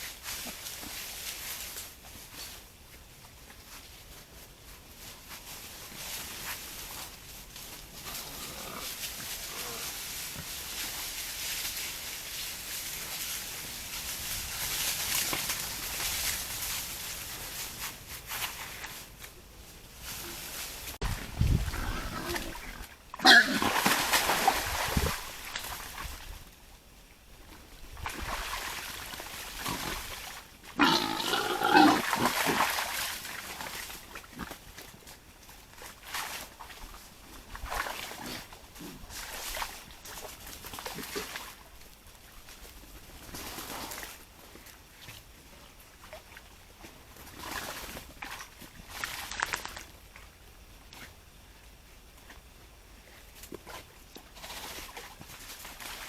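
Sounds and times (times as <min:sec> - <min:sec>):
rustling: 0:00.0 - 0:23.0
wild boar grunting: 0:08.0 - 0:10.0, 0:21.4 - 0:23.8, 0:30.8 - 0:32.6.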